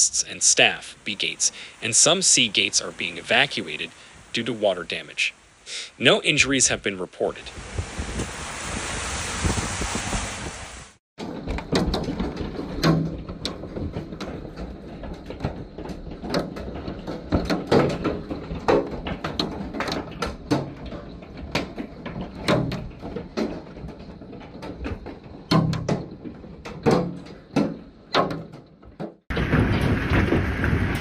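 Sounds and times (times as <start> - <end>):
rush of falling hail and rain: 0.3 - 6.3, 7.4 - 20.9, 29.3 - 31.0.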